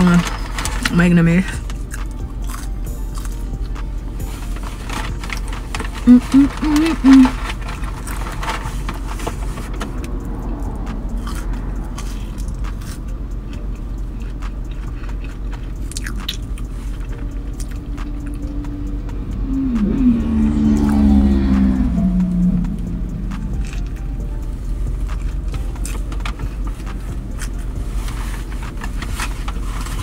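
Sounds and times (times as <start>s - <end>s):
low car rumble: 0.0s - 30.0s
low humming tune: 0.0s - 30.0s
chewing and wet mouth sounds: 1.6s - 3.8s, 9.8s - 27.7s.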